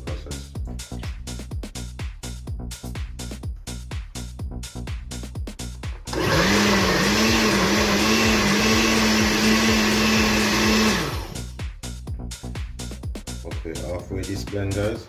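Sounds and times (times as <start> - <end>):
countertop blender motor blending: 6.1 - 11.5.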